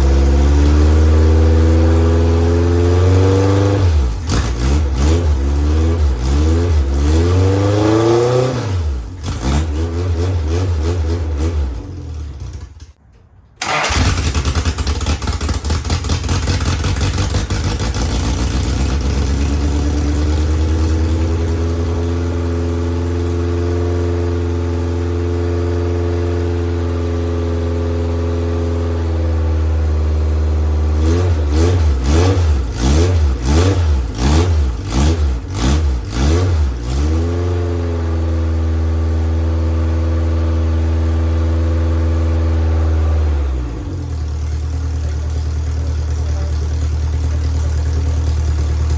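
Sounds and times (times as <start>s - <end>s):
engine revving: 0.0s - 12.9s, 13.6s - 48.9s
race car engine idling: 44.0s - 48.9s.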